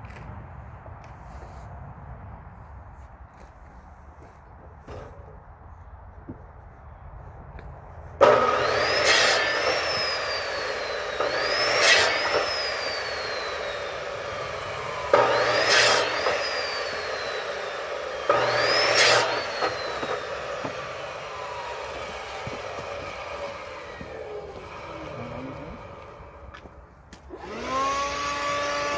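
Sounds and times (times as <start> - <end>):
electric saw cutting logs: 8.2 - 28.9.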